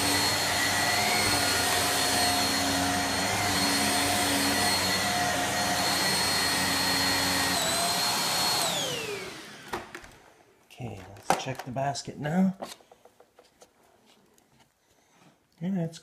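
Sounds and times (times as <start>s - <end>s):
vacuum cleaner running: 0.0s - 10.3s.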